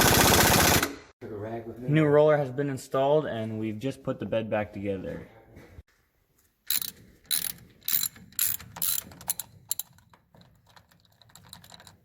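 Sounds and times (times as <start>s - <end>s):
hand ratchet rasping: 6.7s - 12.0s
ratchet clicks: 6.7s - 12.0s.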